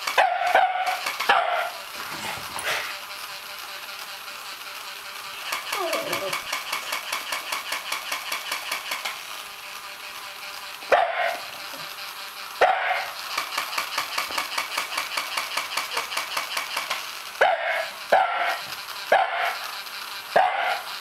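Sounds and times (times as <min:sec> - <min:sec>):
dog barking: 0:00.2 - 0:01.8, 0:10.9 - 0:11.5, 0:12.6 - 0:13.1, 0:17.4 - 0:19.6, 0:20.4 - 0:20.9
fast even clicking: 0:05.4 - 0:09.2, 0:13.2 - 0:17.1.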